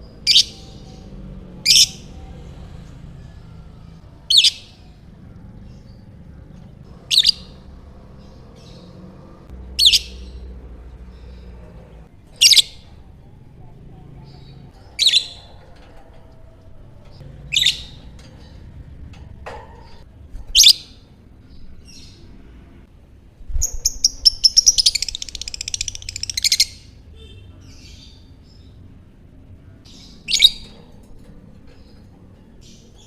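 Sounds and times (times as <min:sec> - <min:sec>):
lovebird chattering trill: 0:23.6 - 0:26.8.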